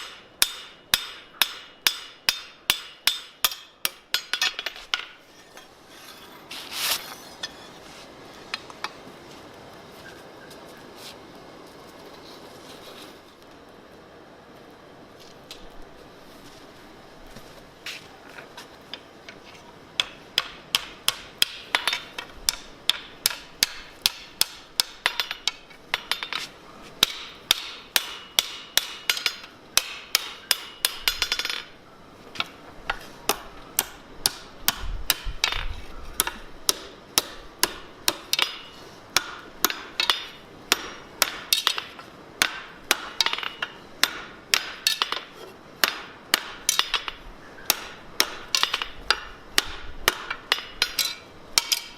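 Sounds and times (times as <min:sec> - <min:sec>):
hammer striking anvil: 0:00.0 - 0:06.3, 0:20.0 - 0:26.4, 0:27.0 - 0:31.7, 0:36.2 - 0:51.9.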